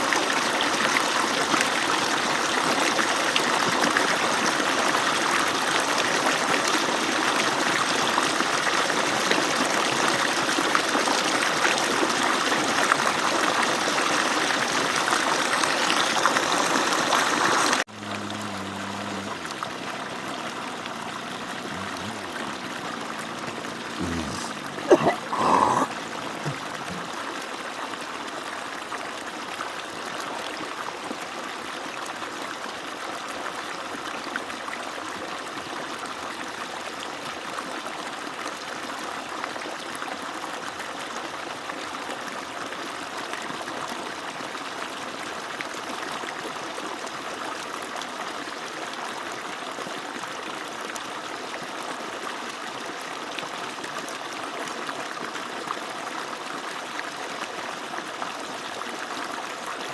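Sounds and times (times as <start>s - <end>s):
water splashing from pump outlet: 0.1s - 24.0s.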